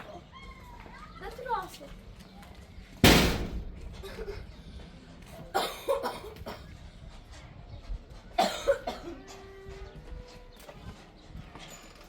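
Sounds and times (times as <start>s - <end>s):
person coughing: 5.5s - 6.6s, 8.4s - 9.2s.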